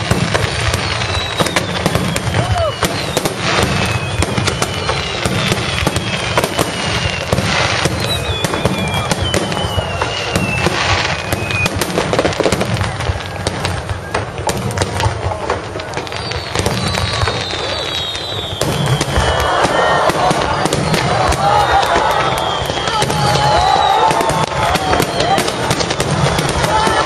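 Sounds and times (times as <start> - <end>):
descending firework whistles: 0.0 - 27.0
fireworks crackling and popping: 0.0 - 27.0.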